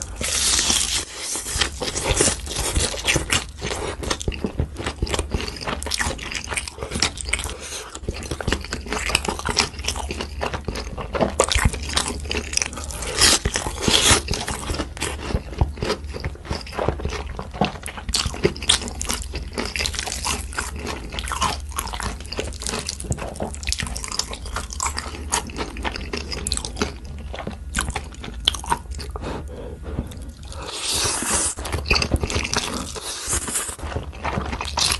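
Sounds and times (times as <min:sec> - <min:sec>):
crunchy food being chewed: 0:00.0 - 0:34.9.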